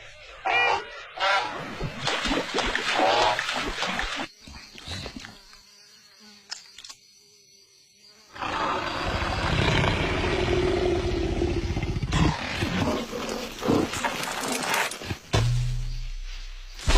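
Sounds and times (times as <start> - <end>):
animal roaring: 8.4 - 14.6.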